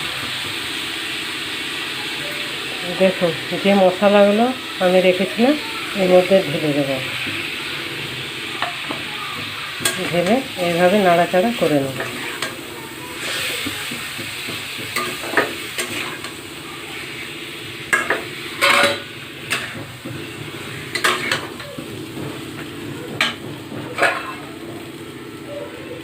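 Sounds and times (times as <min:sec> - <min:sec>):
chicken sizzling in a pan: 0:00.0 - 0:26.0
spatula scraping a pan: 0:07.1 - 0:24.9.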